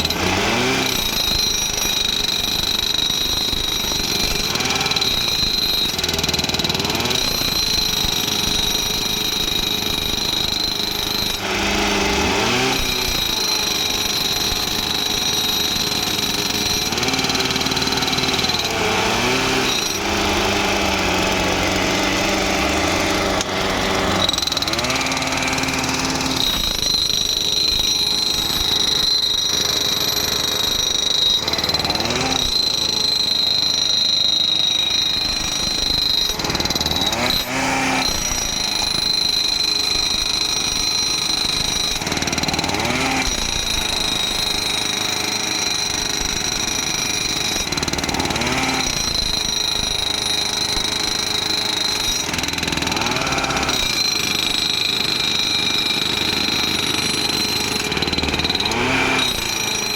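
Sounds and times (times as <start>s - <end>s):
hammering rattle of tampers: 0.0s - 59.9s
small engines running: 0.0s - 59.9s
steady high whine: 19.7s - 42.0s.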